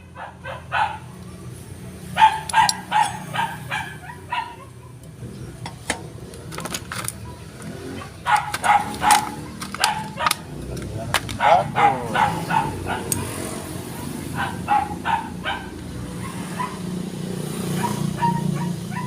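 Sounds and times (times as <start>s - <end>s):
dog barking: 0.0s - 1.2s, 2.1s - 5.0s, 7.8s - 10.6s, 11.4s - 19.0s.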